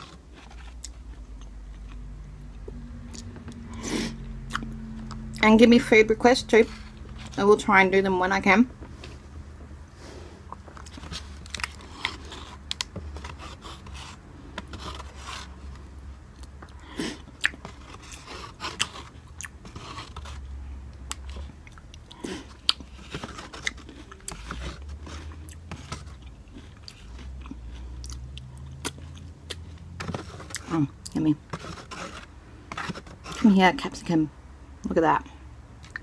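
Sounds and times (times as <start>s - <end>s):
person chewing noodles: 0.0s - 5.3s, 10.0s - 33.4s.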